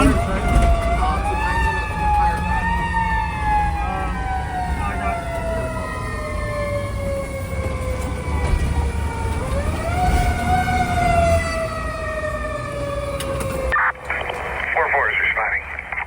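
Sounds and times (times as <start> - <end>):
fire truck siren wailing: 0.0 - 16.0
truck rumble: 0.0 - 16.0.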